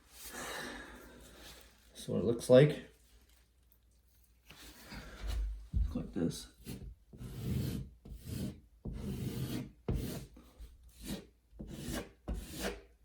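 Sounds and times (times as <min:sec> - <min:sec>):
putty knife scraping spackle: 0:11.0 - 0:12.9.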